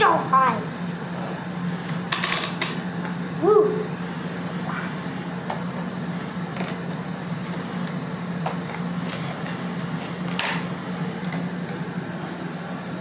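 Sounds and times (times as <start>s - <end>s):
steady low hum: 0.0s - 13.0s
plastic toy pieces clicking: 2.1s - 2.8s.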